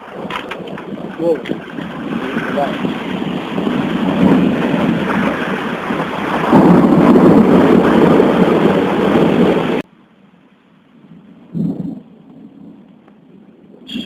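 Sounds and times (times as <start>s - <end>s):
thunder rumbling: 0.0s - 9.9s, 10.8s - 14.0s
heavy rain: 0.0s - 14.0s.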